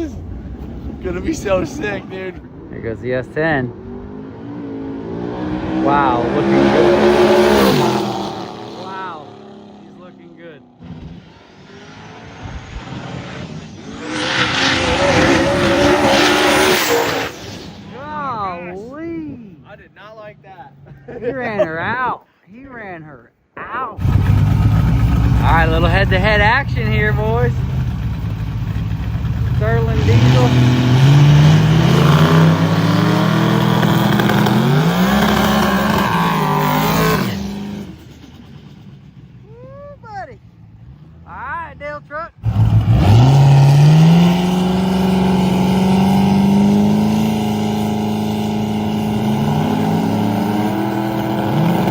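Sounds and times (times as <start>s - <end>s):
pickup engine at full throttle: 3.8s - 18.1s, 24.0s - 39.3s, 42.4s - 51.9s.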